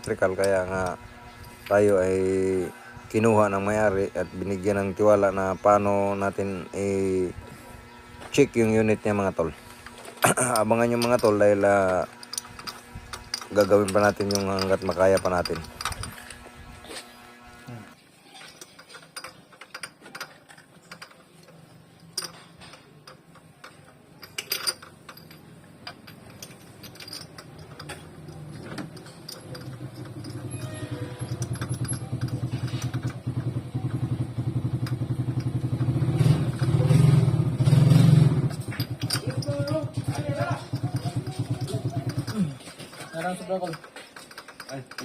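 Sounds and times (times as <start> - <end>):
hand tools clinking: 8.4 - 16.4, 18.2 - 36.9, 38.4 - 45.0
small engine running: 26.6 - 42.7.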